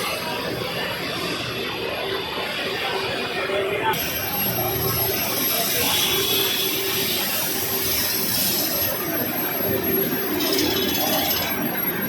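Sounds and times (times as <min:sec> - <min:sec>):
thin high whine: 0:00.0 - 0:12.0
machinery hiss: 0:04.0 - 0:11.3.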